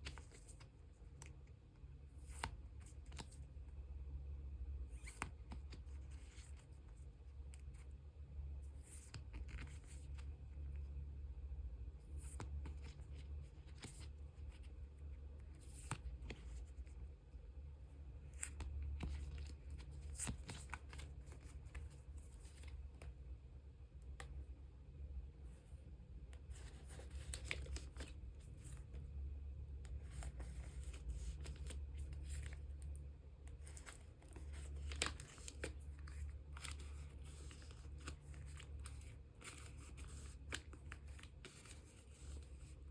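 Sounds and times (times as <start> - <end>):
steady low hum: 0.0 - 42.9
plastic sleeves rustling and crinkling: 18.1 - 23.2, 26.4 - 29.2, 29.8 - 42.9.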